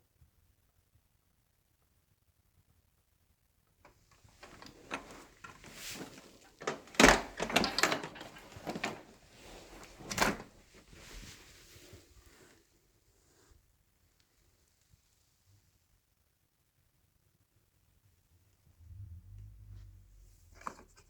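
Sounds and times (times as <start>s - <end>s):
plastic clicks and rattles: 4.4s - 9.2s.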